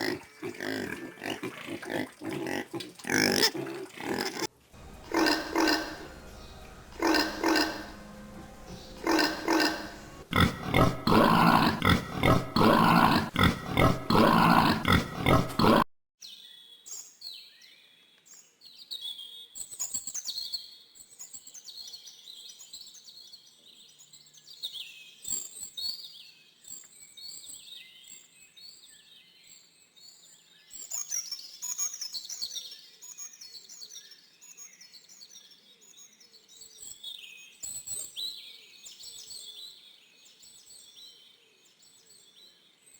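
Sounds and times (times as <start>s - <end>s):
animal grunting: 0.0s - 8.1s, 8.7s - 15.9s.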